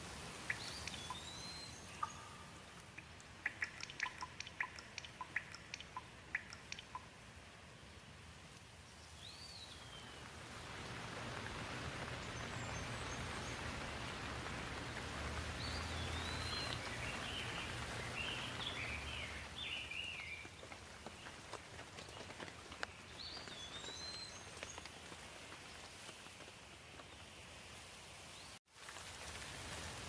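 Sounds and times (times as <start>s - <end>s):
rain hissing: 0.0s - 26.4s, 28.8s - 30.0s
bird chirping: 0.4s - 7.1s, 15.0s - 21.4s.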